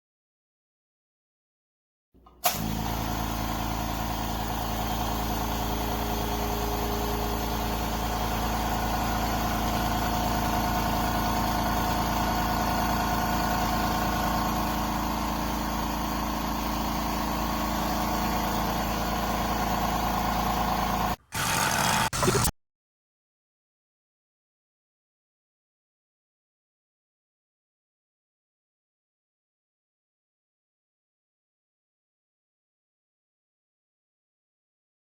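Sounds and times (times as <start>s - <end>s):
air compressor humming: 2.2s - 22.5s.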